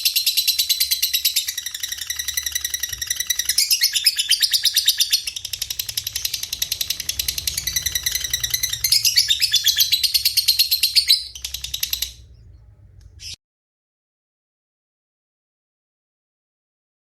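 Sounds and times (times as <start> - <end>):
songbird high chirps: 0.0 - 13.4.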